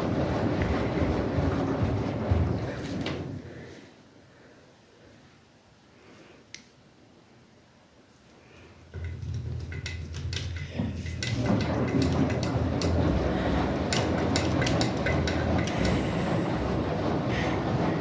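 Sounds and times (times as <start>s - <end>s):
washing machine drum rumbling: 0.0s - 3.6s, 8.9s - 18.0s
washing machine motor hum: 0.0s - 3.8s, 8.9s - 18.0s
sharp clicks and knocks: 8.9s - 18.0s.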